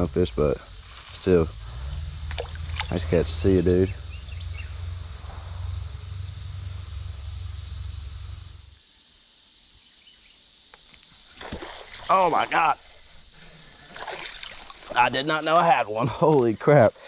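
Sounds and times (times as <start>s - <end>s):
low rumble: 0.0s - 8.8s
insects buzzing: 0.0s - 17.0s.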